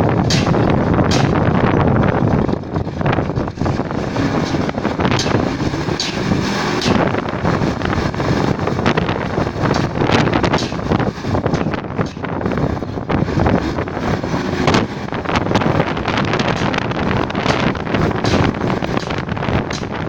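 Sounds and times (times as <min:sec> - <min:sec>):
knocks and clanks: 0:00.0 - 0:20.0
machinery rumbling: 0:00.0 - 0:20.0
wind buffeting microphone: 0:00.0 - 0:20.0.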